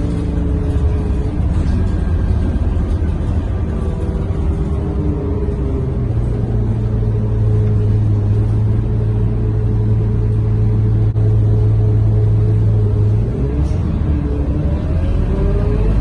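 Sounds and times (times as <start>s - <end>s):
bus diesel engine droning: 0.0s - 16.0s.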